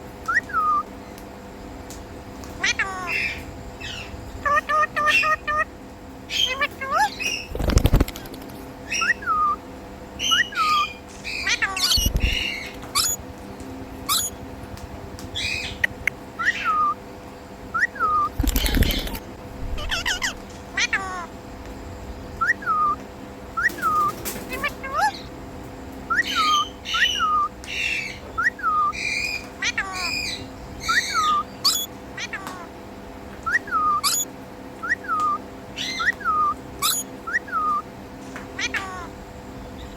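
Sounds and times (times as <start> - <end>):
parrot whistled calls: 0.3 - 0.9, 2.6 - 5.7, 6.3 - 7.5, 8.9 - 9.6, 10.2 - 13.2, 14.1 - 14.4, 15.4 - 17.0, 17.7 - 19.2, 19.8 - 21.3, 22.4 - 25.3, 26.1 - 32.7, 33.4 - 37.9, 38.6 - 39.1
parrot squawks: 2.6 - 5.7, 6.3 - 7.5, 8.9 - 9.6, 10.2 - 13.2, 14.1 - 14.4, 15.4 - 17.0, 17.8 - 21.3, 23.6 - 25.3, 26.1 - 32.8, 33.4 - 37.9, 38.6 - 39.2.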